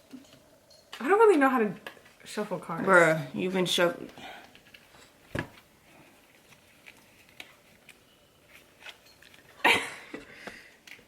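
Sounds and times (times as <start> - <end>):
cards rustling: 4.4 - 9.6.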